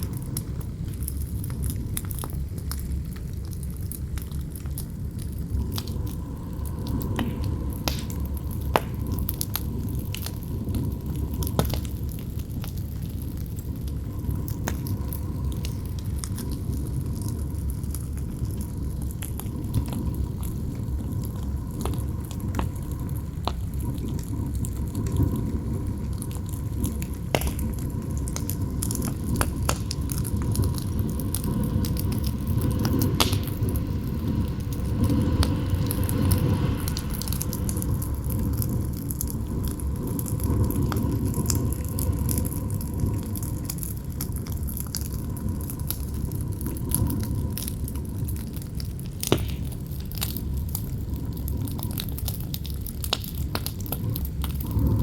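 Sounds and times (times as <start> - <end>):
campfire crackling and snapping: 0.0 - 55.0
wind howling: 0.0 - 55.0
wind rushing: 27.8 - 43.1.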